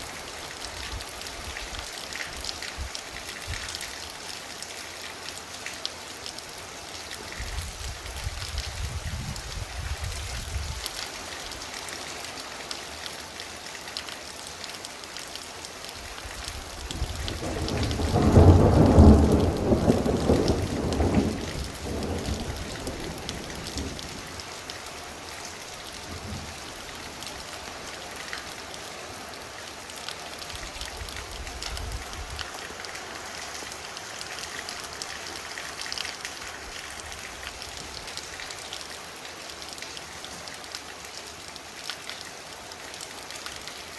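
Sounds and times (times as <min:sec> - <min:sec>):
heavy rain: 0:00.0 - 0:43.9
thunder rolling: 0:17.0 - 0:24.1.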